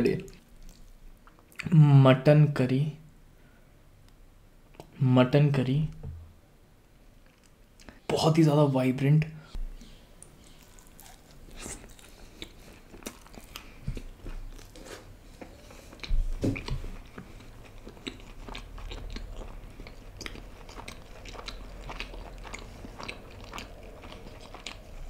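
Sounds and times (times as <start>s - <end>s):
person chewing food: 0.3s - 1.6s, 9.6s - 25.0s.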